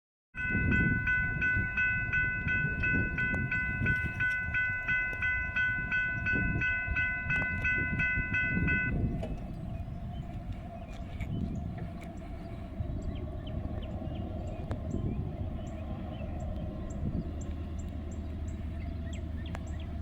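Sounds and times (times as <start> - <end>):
bell ringing quickly: 0.4 - 9.0
train wheels rumbling on rails: 0.4 - 20.0.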